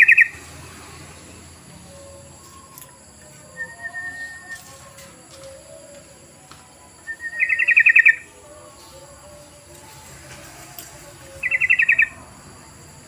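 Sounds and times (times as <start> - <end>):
bird song quick repeated notes: 11.4 - 12.2.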